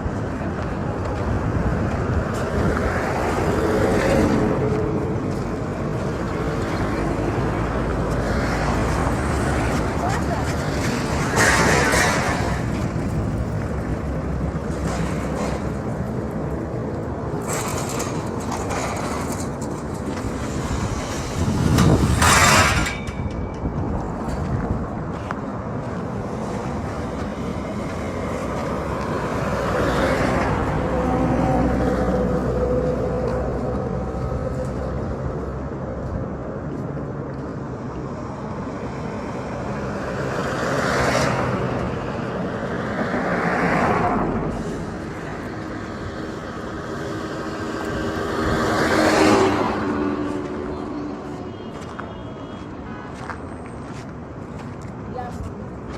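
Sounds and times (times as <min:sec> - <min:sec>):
road traffic rumble: 0:00.0 - 0:55.9
vehicles passing close by: 0:00.0 - 0:55.9
vehicle passing close by: 0:39.0 - 0:52.1.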